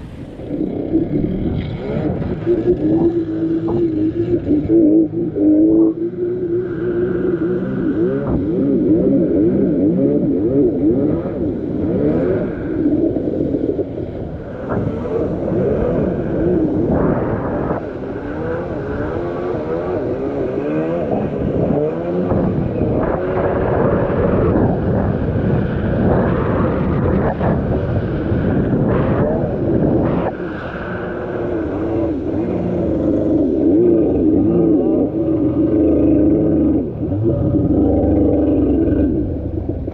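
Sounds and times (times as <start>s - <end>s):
motorcycle engine revving: 0.0s - 12.7s, 28.8s - 39.9s.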